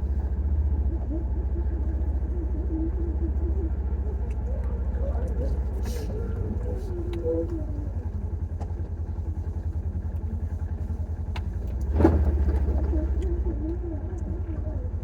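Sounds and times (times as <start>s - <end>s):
small vehicle engine running: 0.0s - 15.0s.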